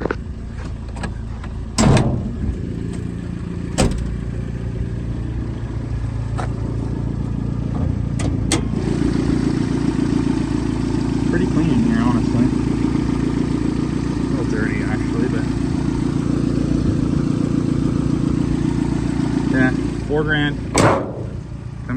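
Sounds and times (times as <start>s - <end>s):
hood clunking: 0.0s - 4.7s, 7.7s - 21.8s
car engine idling: 0.0s - 21.9s.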